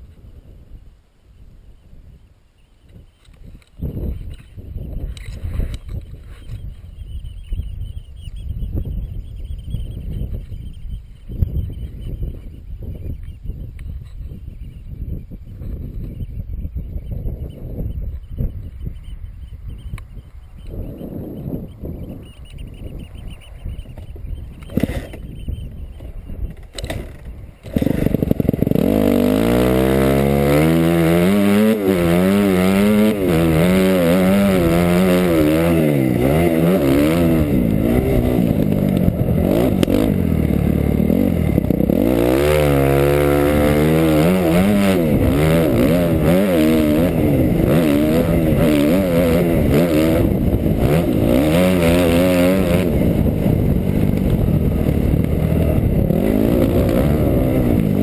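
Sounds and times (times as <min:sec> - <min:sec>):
dirt bike engine revving: 0:26.5 - 0:58.0.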